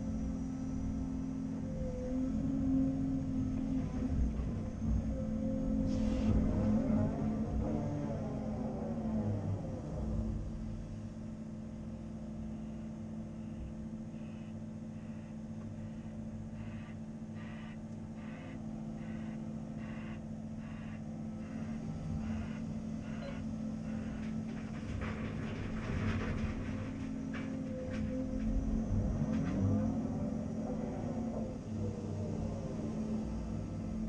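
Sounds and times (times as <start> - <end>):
excavator diesel engine running: 0.0 - 34.0
high beeps: 23.1 - 23.4
clattering: 24.1 - 28.6.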